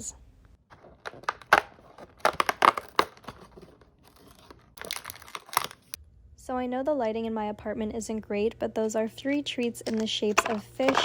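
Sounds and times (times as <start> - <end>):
cardboard and plastic tearing: 0.7 - 6.0.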